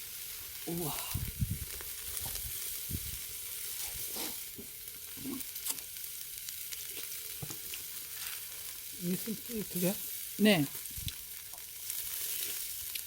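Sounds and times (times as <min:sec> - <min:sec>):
meat sizzling on a grill: 0:00.0 - 0:13.0
fat popping and crackling: 0:00.5 - 0:13.0.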